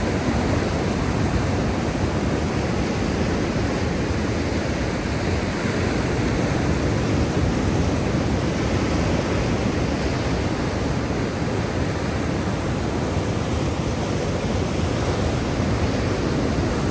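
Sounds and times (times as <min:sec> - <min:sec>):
sea surf rushing: 0:00.0 - 0:16.9.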